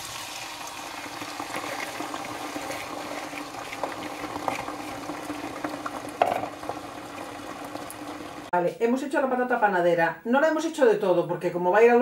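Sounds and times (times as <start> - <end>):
potatoes crackling in oil: 0.0 - 8.5.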